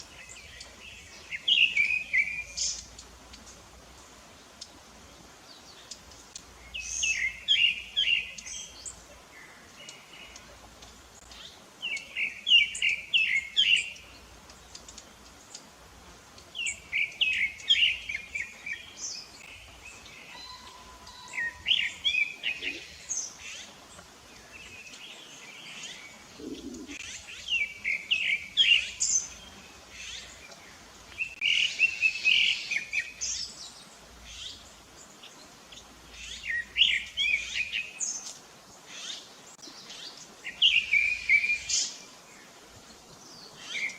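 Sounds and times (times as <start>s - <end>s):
high bird calls: 16.4s - 30.6s.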